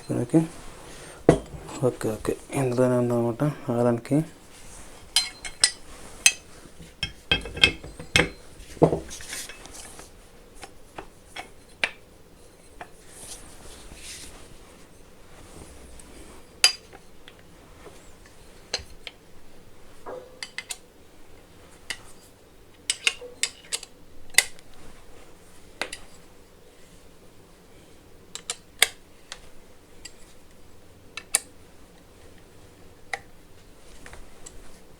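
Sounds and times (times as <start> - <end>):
metal parts clinking and rattling: 7.0 - 8.4.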